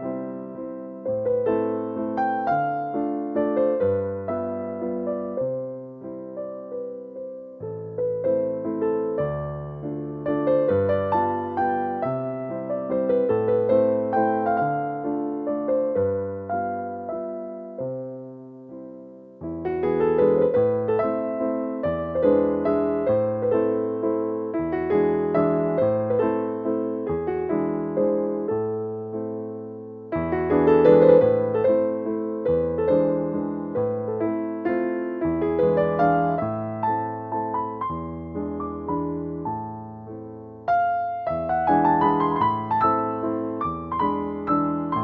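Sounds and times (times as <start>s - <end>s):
gentle piano waltz: 0.0s - 45.0s.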